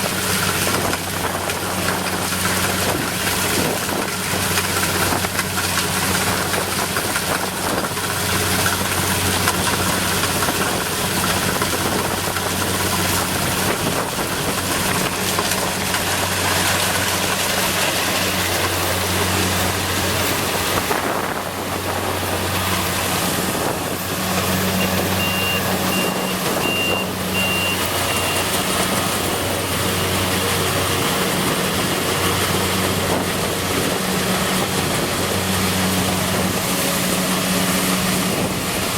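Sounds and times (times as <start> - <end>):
diesel engine running: 0.0 - 38.9
machinery clatter: 0.0 - 38.9
high electronic beeper: 24.8 - 28.6.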